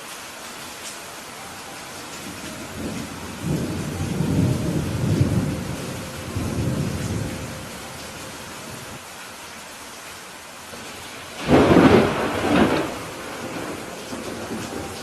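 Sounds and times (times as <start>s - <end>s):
rain hissing: 0.0s - 15.0s
low thunder rumble: 2.2s - 9.0s, 10.8s - 15.0s.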